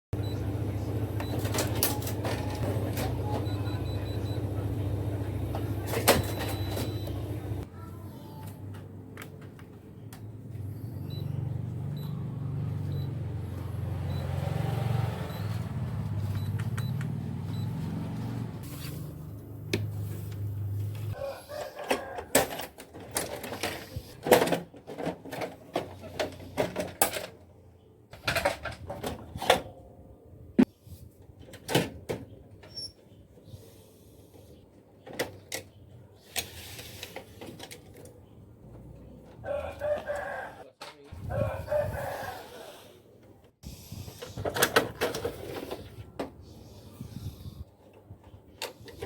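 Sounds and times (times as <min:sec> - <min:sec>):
copier parts clicking and rattling: 0:01.2 - 0:04.4, 0:05.4 - 0:07.6, 0:21.5 - 0:27.6, 0:28.2 - 0:29.8, 0:44.2 - 0:45.9.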